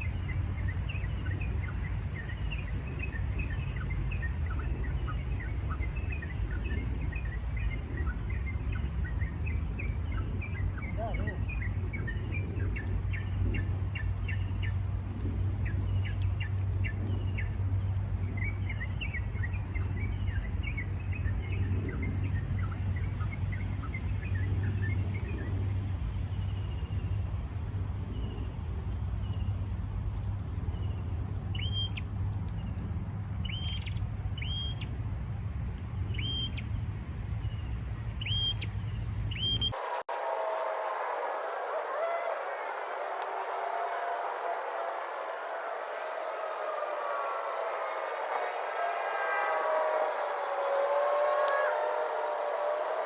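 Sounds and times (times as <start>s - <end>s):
small birds chirping: 0.0s - 14.8s, 36.0s - 53.0s
high insect drone: 0.0s - 53.0s
low hum: 36.6s - 53.0s
repeated bird call: 38.2s - 53.0s.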